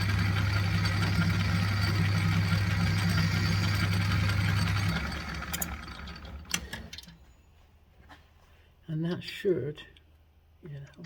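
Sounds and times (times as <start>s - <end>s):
metal lathe running and spinning down: 0.0s - 6.6s.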